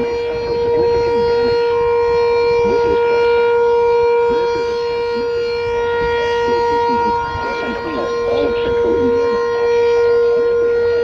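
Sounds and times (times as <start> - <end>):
warning siren steady wail: 0.0 - 11.0.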